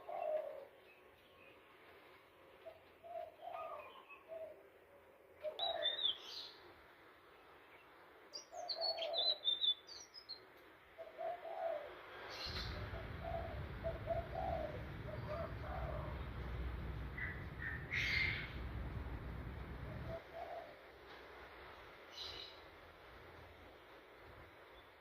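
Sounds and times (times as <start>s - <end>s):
bird whistling song: 5.5s - 6.5s, 8.4s - 10.4s, 12.4s - 20.3s
low steady rumble: 12.5s - 25.0s
low cooing notes: 12.6s - 20.8s.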